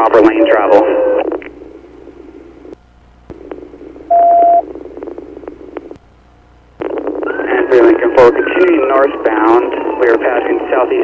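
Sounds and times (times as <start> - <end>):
radio static hiss: 0.0 - 11.0
radio clicks: 3.2 - 6.1, 6.8 - 7.9
single-tone beep: 4.1 - 4.6.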